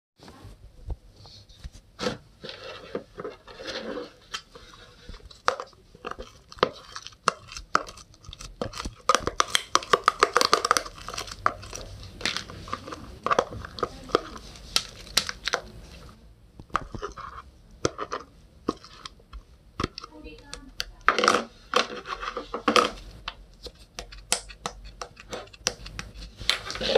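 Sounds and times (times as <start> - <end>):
sticky pops and clicks: 23.6 - 26.7.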